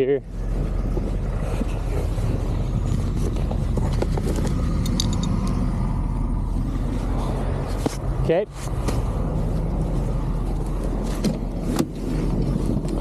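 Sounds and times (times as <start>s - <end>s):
vehicle engine idling: 0.0s - 13.0s
metal chain links clinking: 4.7s - 5.6s.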